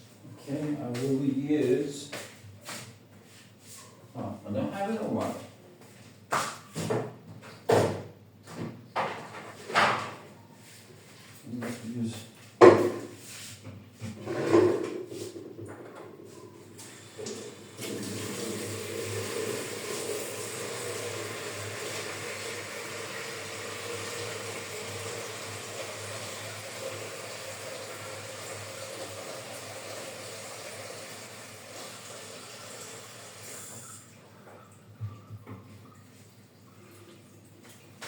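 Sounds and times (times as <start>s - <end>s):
water running: 16.0s - 38.0s.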